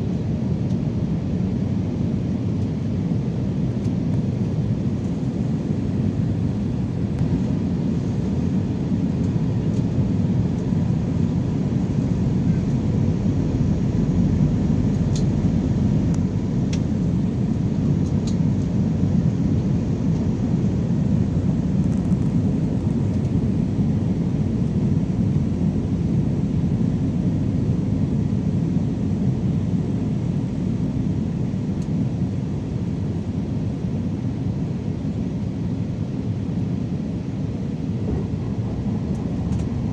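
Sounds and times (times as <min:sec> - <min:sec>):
airliner cabin roar: 0:00.0 - 0:39.9
faint steady hum: 0:00.0 - 0:39.9.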